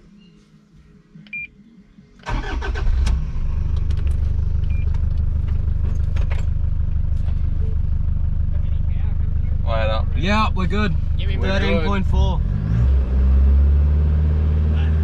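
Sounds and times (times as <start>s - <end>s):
engine cranking and idling: 2.2s - 12.8s.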